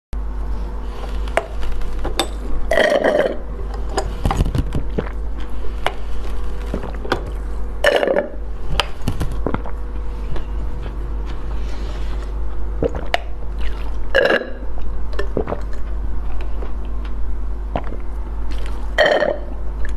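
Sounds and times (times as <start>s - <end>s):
low hum: 0.2s - 19.9s.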